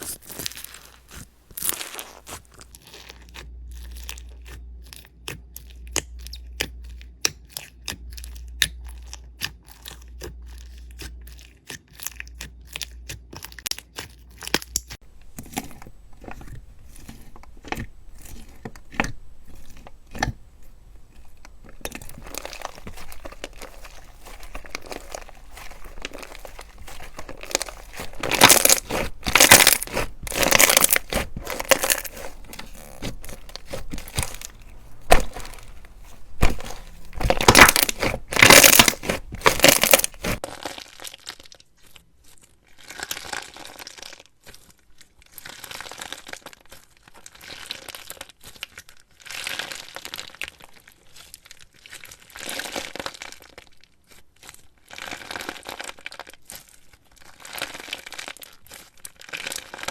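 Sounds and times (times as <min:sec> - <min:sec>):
slime squished by hand crackling: 0:00.0 - 0:03.4, 0:21.1 - 0:40.4.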